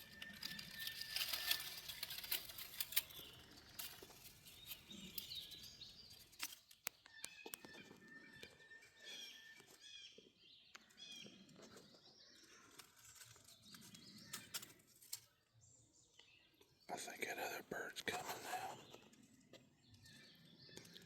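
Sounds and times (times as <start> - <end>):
soft clicks and rustles: 0.0 - 8.0, 10.7 - 15.3
songbirds chirping: 0.0 - 21.0.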